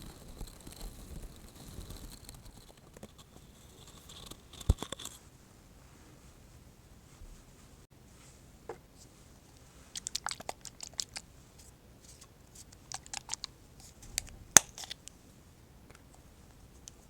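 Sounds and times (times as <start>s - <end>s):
eye-drop bottle crinkling and clicking: 10.0s - 11.2s, 12.8s - 13.5s.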